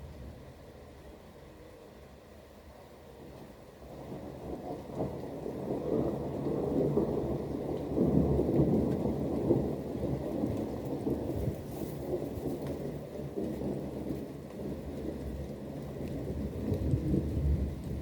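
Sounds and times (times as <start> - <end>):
rain falling: 0.0 - 18.0
rolling thunder: 3.9 - 18.0.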